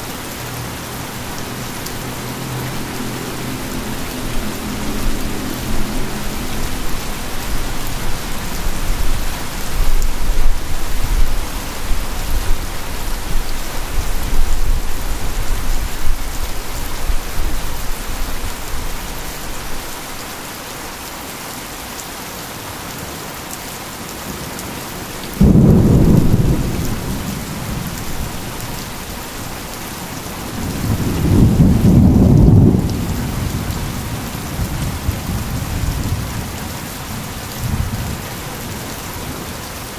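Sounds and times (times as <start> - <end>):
heavy rain: 0.0 - 39.9
thunder: 25.4 - 28.0, 30.6 - 33.7.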